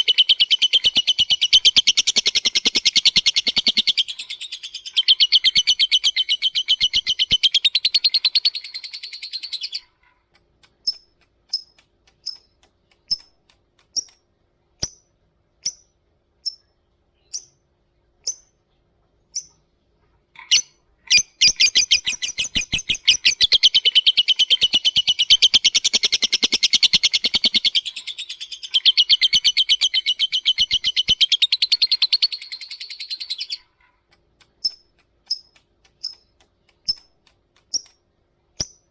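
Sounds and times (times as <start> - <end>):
bird chattering trill: 0.0 - 9.9, 20.4 - 33.7
sharp bird chips: 0.0 - 9.9, 10.6 - 14.2, 20.4 - 33.7, 34.4 - 38.0.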